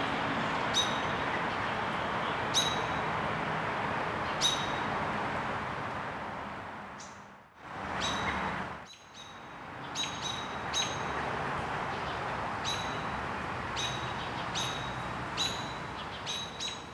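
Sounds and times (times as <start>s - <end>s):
high bird chirps: 8.0s - 11.1s.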